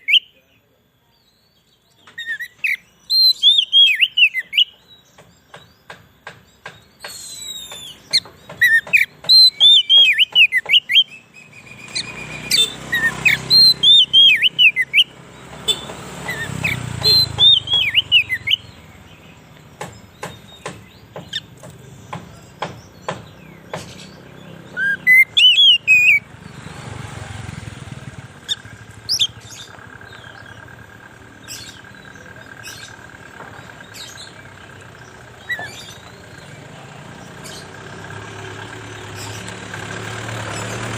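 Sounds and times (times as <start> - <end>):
sharp ticking bird calls: 0.0 - 40.9
bird singing whistled phrases: 2.2 - 4.8, 7.0 - 18.8, 24.7 - 26.3.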